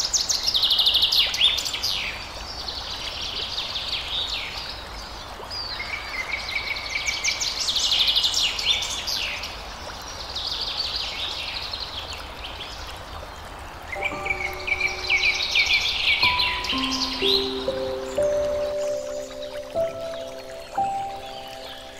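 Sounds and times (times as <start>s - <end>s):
songbirds chirping and trilling: 13.9s - 21.9s
steady background hiss: 13.9s - 21.9s
steady music tones: 14.0s - 21.9s.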